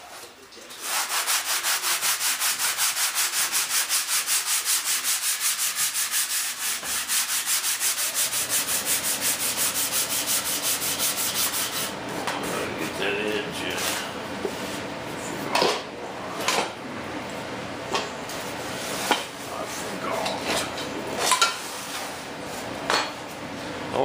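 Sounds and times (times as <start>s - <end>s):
sandpaper scuffing hard surface: 0.8s - 11.9s.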